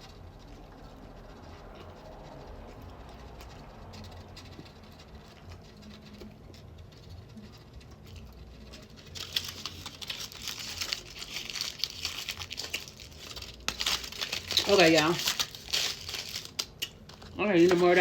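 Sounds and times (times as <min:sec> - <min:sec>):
food wrapper crinkling: 0:03.9 - 0:18.0.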